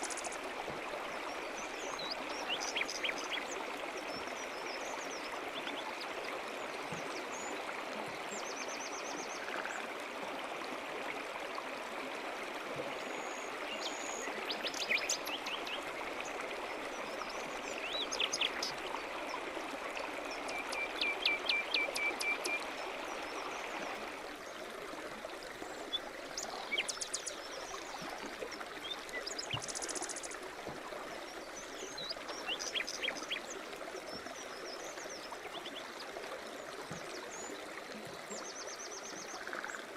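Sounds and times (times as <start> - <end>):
brook running: 0.0 - 39.9
small birds singing: 1.6 - 3.6, 17.3 - 18.8, 31.3 - 33.5.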